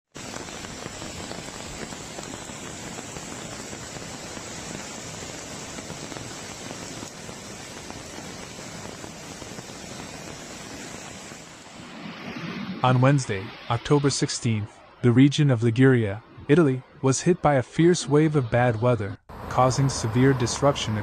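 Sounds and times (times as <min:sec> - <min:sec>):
heavy rain falling: 0:00.1 - 0:11.9.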